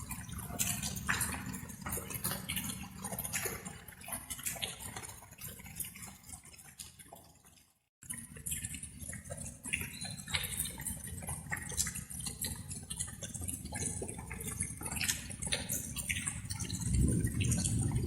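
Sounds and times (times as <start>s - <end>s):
rain drops pattering: 0.0s - 18.0s
low wash of rain: 16.5s - 18.0s.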